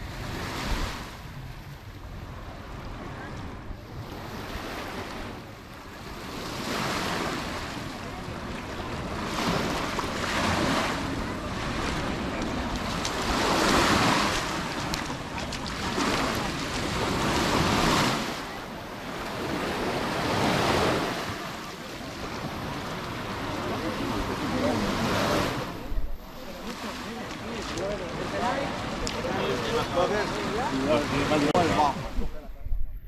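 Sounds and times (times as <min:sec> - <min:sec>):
sea waves breaking: 0:00.0 - 0:32.6
wind on microphone: 0:25.4 - 0:26.7, 0:31.6 - 0:33.0.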